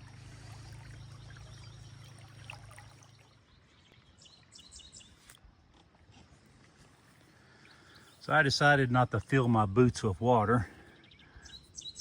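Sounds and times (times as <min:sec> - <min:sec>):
water rushing through creek: 0:00.0 - 0:03.4
low steady hum: 0:00.0 - 0:04.4.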